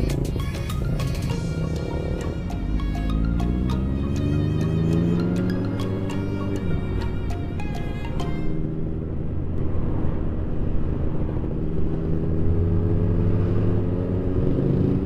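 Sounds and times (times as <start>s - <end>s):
road and wind noise: 0.0s - 15.0s.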